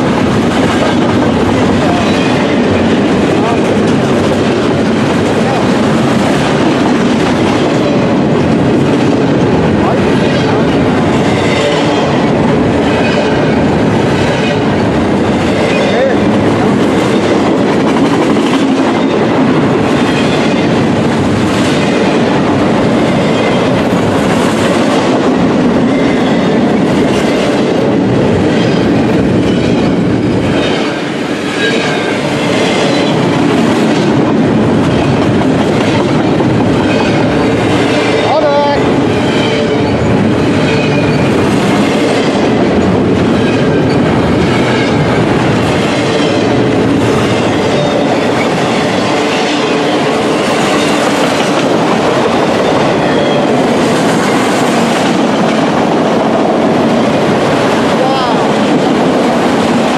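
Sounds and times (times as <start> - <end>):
train wheels clattering over rails: 0.0 - 59.9
train wheel squeal: 28.5 - 33.3, 39.1 - 41.4, 47.1 - 49.8, 52.5 - 53.6.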